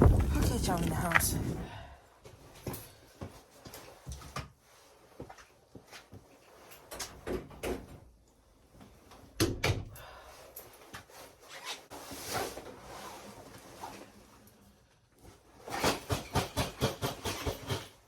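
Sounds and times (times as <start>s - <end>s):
door knocks and bumps: 0.0s - 1.4s.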